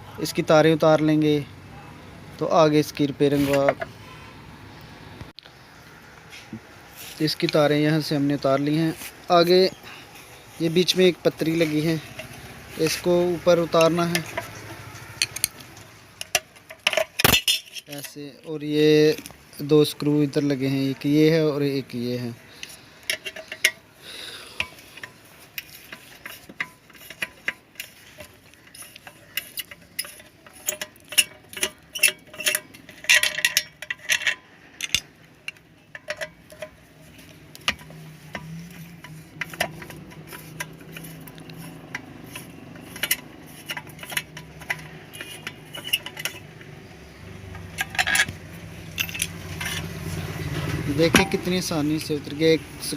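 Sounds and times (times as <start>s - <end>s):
screwdriver clicking on metal: 11.5s - 18.2s, 24.6s - 36.8s, 37.5s - 46.7s.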